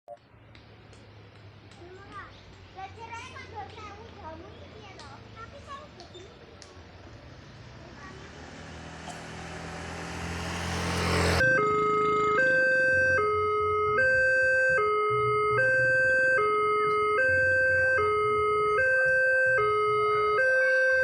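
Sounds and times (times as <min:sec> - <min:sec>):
two-tone level crossing alarm: 0:11.3 - 0:21.0.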